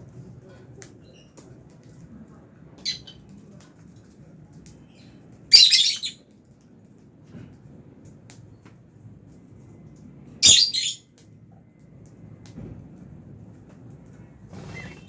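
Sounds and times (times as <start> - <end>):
lovebirds chirping and screeching: 2.8 - 3.2, 5.5 - 6.2, 10.4 - 11.0.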